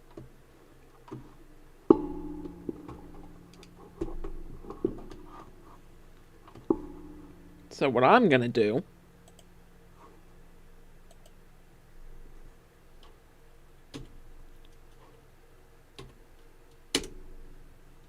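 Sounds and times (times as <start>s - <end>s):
faint steady hum: 0.0s - 18.0s
computer mouse clicks: 9.2s - 9.5s, 11.1s - 11.4s.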